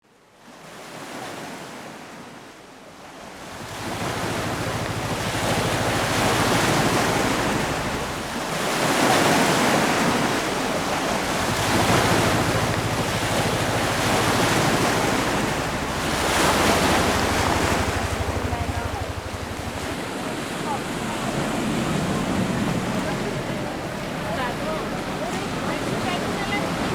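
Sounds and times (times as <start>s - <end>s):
wind: 0.0s - 26.9s
sea waves washing in: 3.1s - 26.9s
low steady hum: 4.4s - 8.6s, 10.4s - 26.5s.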